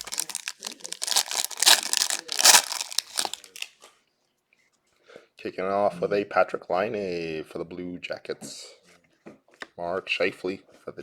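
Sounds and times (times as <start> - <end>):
plastic wrapping torn and crinkled: 0.0 - 3.7.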